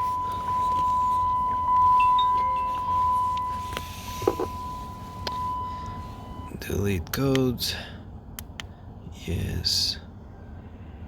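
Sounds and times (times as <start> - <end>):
car electronic warning tone: 0.0 - 6.6.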